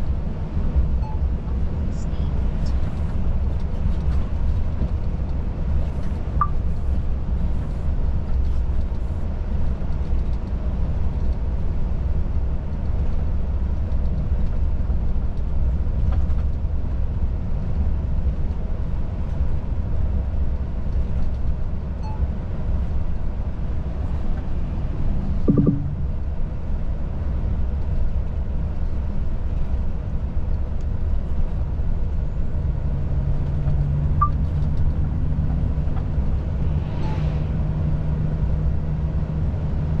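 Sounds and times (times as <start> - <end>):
truck engine and road noise: 0.0 - 40.0
low hum: 24.3 - 26.6.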